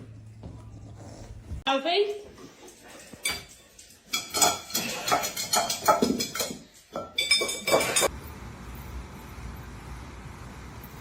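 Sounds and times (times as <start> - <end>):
dishes clinking and clattering: 2.4 - 8.1.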